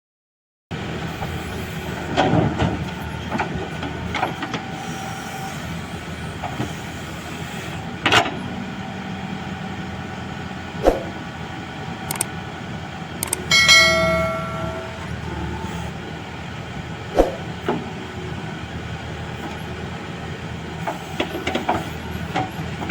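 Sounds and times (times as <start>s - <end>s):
diesel machinery running: 0.7s - 22.9s
metallic clanks and knocks: 13.5s - 15.5s.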